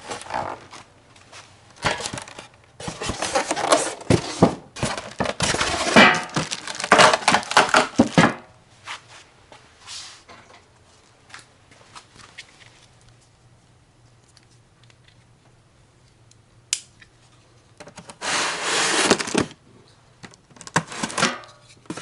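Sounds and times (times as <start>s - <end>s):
packaging crinkling and tearing: 4.8s - 8.4s.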